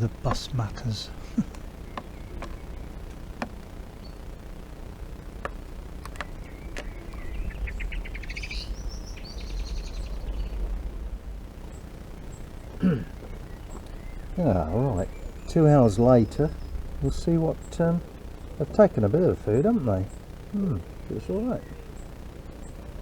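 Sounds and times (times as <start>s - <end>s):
faint ticks: 0.0s - 10.7s, 11.6s - 14.4s
low background rumble: 0.0s - 23.0s
songbird trill: 0.0s - 23.0s.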